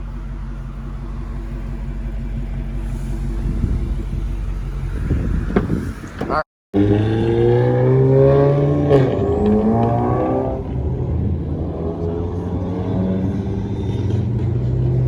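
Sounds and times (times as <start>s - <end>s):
car engine revving and idling: 0.0s - 15.0s.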